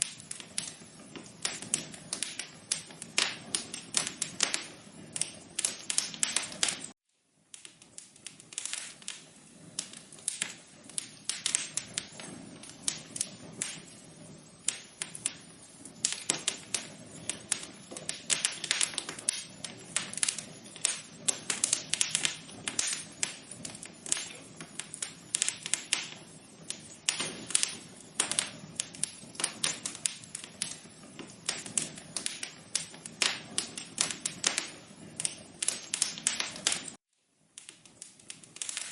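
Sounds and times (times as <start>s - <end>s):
fire crackling in a fireplace: 0.0s - 38.9s.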